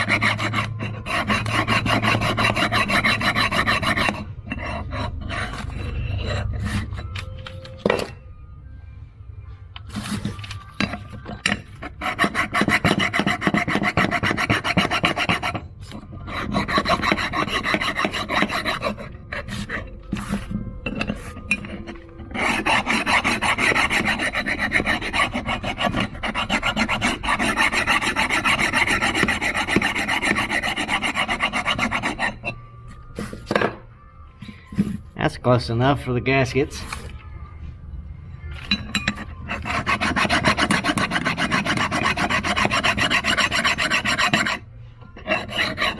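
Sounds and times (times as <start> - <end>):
metal file rasping on metal: 0.0 - 7.1, 11.5 - 32.6, 39.0 - 44.6, 45.2 - 45.9.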